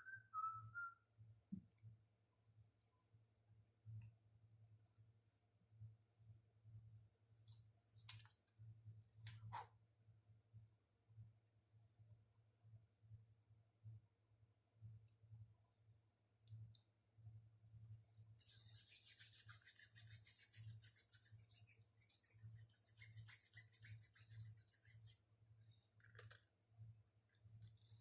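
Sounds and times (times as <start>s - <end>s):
rapid rubbing or scraping strokes: 18.4s - 25.2s.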